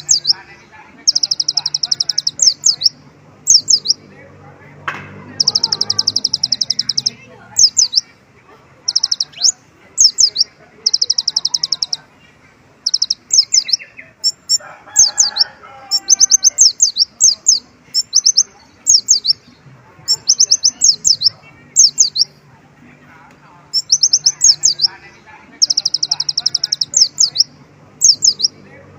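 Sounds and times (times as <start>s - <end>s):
bird singing high trills: 0.0s - 4.0s, 5.3s - 8.1s, 8.9s - 12.0s, 12.8s - 19.4s, 20.1s - 22.4s, 23.7s - 25.0s, 25.6s - 28.6s.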